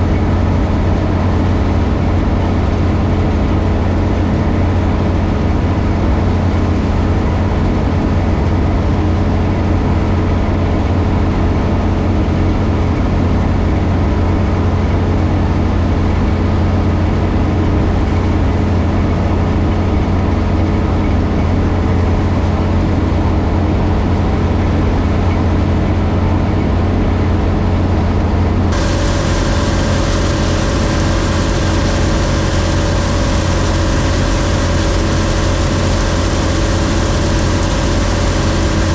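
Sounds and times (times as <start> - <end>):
combine engine humming: 28.7 - 38.9
steady whine: 28.7 - 38.9.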